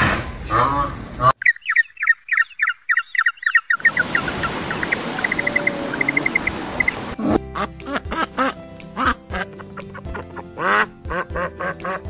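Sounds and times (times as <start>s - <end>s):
small birds chirping: 1.3s - 7.4s.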